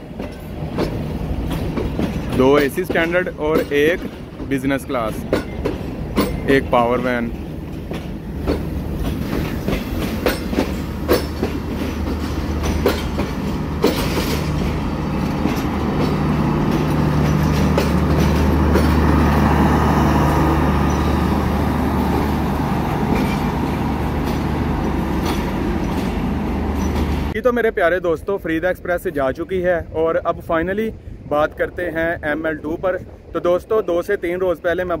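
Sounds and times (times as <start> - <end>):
train wheels clicking over rail joints: 0.0 - 27.4.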